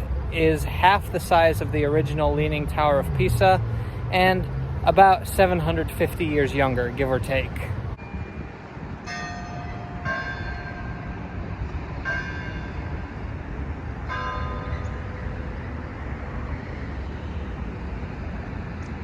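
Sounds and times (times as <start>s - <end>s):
church bell strokes: 9.1s - 13.2s.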